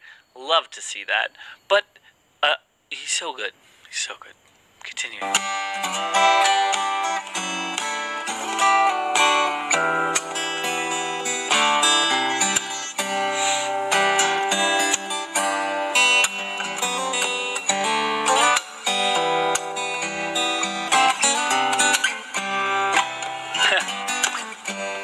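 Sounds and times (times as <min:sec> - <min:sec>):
fingerstyle acoustic guitar: 0:05.2 - 0:25.0.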